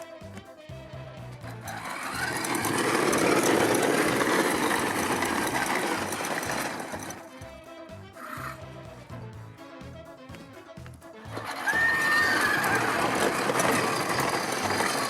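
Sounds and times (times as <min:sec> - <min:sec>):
ride-on toy motor buzzing: 0:01.5 - 0:07.5, 0:08.2 - 0:08.8, 0:11.3 - 0:15.0.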